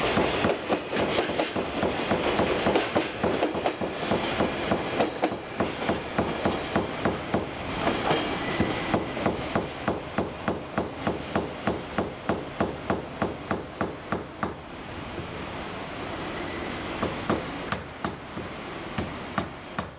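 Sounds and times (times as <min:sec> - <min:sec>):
wheels clacking over rail joints: 0:00.0 - 0:09.7
train rumbling: 0:00.0 - 0:19.9.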